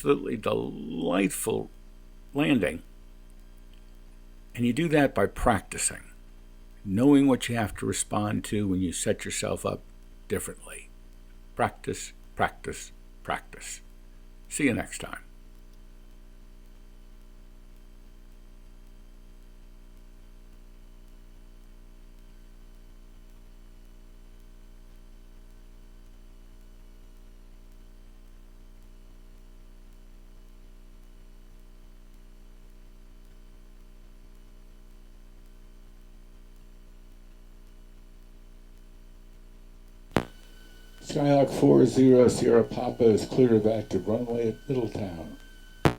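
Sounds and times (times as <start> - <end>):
aircraft piston engine idling: 40.3 - 45.4.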